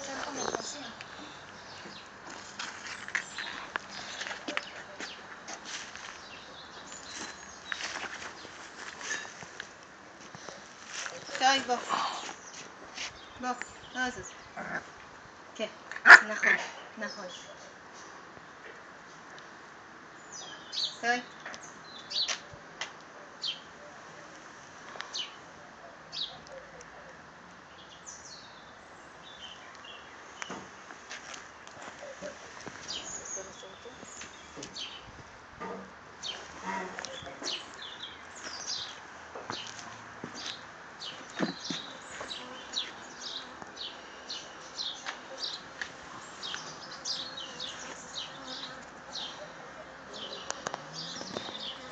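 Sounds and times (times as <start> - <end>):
small birds chirping: 0.0 - 15.8, 16.6 - 35.2, 36.2 - 51.9.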